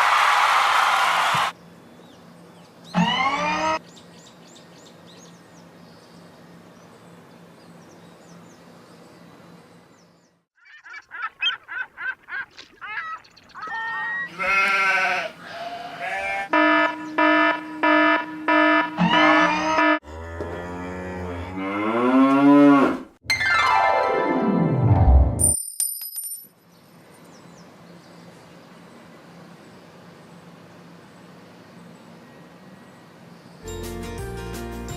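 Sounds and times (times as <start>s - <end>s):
regular beeping tone: 16.5s - 20.0s.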